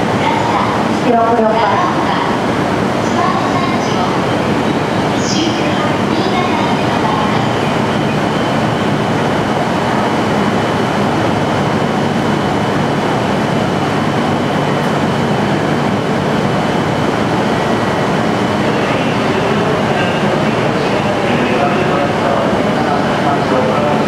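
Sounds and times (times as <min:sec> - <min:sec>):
station ambience: 0:00.0 - 0:24.0
train hum and hiss: 0:00.0 - 0:24.0.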